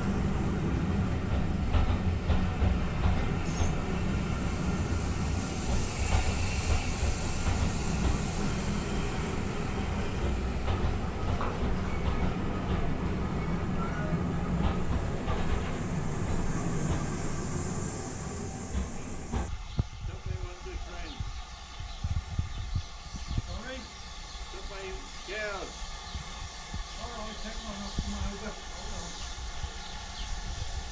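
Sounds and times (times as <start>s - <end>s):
train rumbling on rails: 0.0s - 19.5s
wheels clicking: 0.0s - 19.5s.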